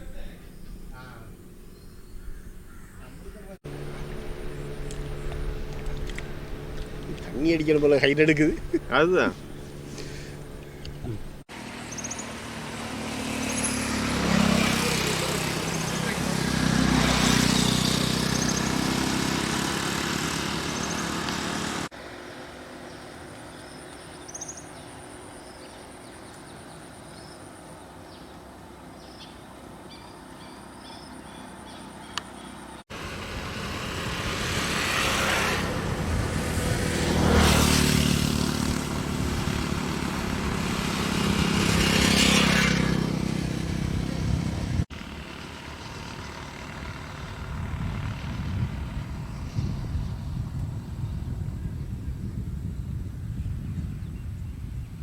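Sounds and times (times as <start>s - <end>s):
motor vehicles passing: 0.0s - 24.0s, 32.6s - 51.5s.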